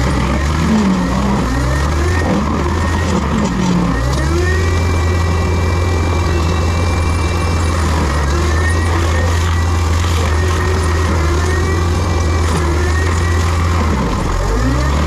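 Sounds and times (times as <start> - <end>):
diesel engine running: 0.0 - 15.0
thin high whine: 4.6 - 13.5.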